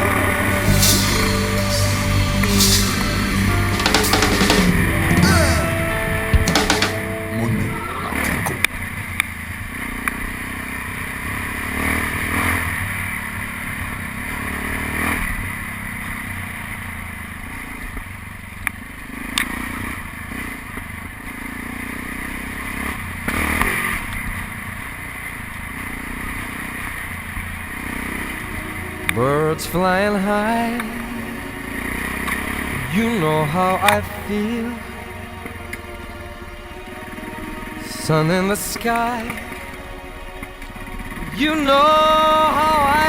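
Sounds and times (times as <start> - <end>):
motorcycle engine running: 8.1 - 29.4, 31.3 - 33.0.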